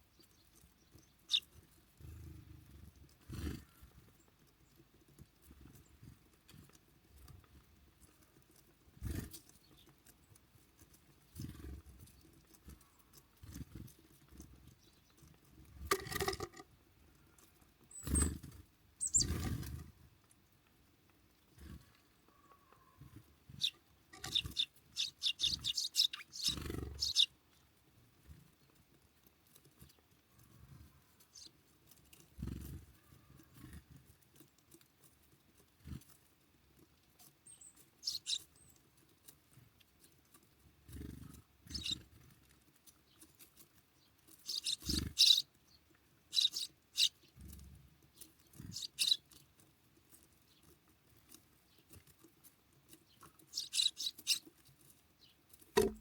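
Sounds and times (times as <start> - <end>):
birds pecking and scratching: 0.0 - 56.0
dull thumps: 55.8 - 56.0.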